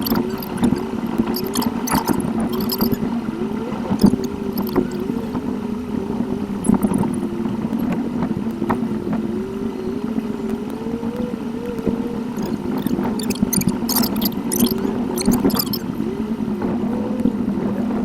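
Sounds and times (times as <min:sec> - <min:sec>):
faint clicks: 0:00.0 - 0:03.0, 0:03.9 - 0:05.2, 0:06.6 - 0:08.8, 0:10.4 - 0:15.8
sped-up car engine wavering tone: 0:00.0 - 0:08.2, 0:08.8 - 0:17.3
road noise: 0:00.0 - 0:17.9.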